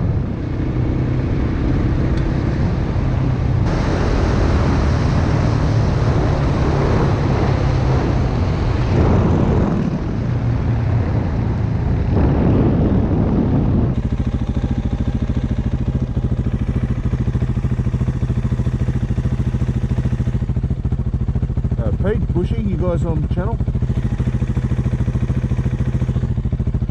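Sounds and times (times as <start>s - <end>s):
wind noise on microphone: 0.0s - 20.6s
dirt bike engine running: 0.0s - 26.9s.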